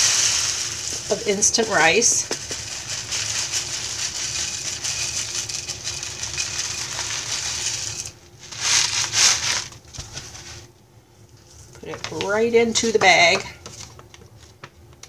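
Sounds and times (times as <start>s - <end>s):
dry rice rattling into a bag: 0.0s - 10.7s
bag rustling: 2.6s - 10.7s.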